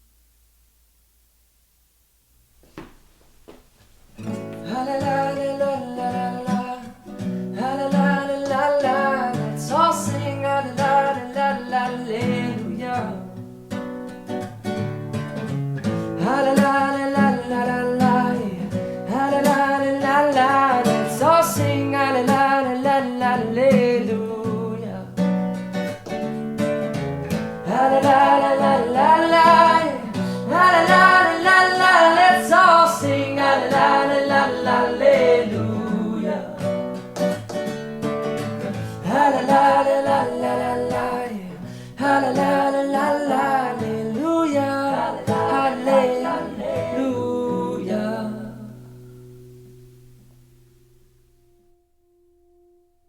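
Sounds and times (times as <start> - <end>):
strummed acoustic guitar: 4.0 - 52.8
person singing: 4.6 - 13.3, 16.2 - 25.2, 27.6 - 37.0, 38.6 - 48.9.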